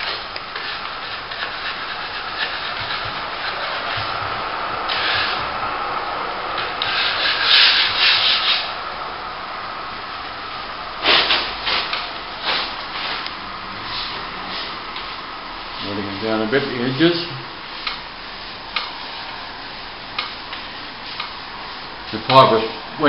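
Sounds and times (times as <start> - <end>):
trowel scraping plaster: 0.0 - 4.1, 6.8 - 8.6.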